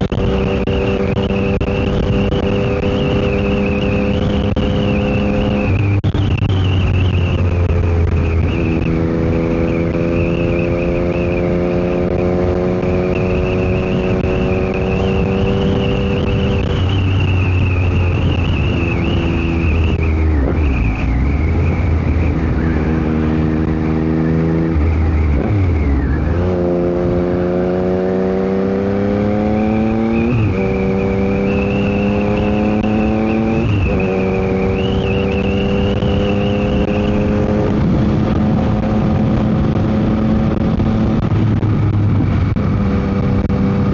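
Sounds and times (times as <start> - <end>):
motorcycle engine revving: 0.0 - 43.9
wind noise on microphone: 0.0 - 43.9.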